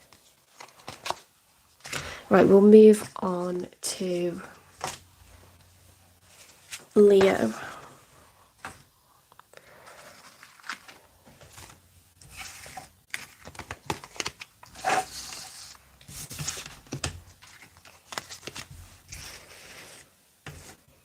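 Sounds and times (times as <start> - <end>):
cards rustling: 0.0 - 2.2, 9.7 - 20.8.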